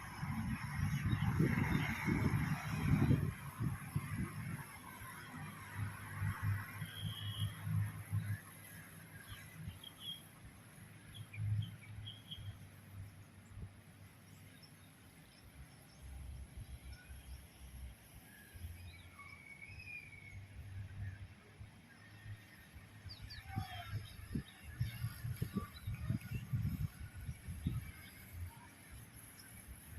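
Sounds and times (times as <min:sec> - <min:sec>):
wind rumble on microphone: 0:00.0 - 0:10.0, 0:20.3 - 0:29.9.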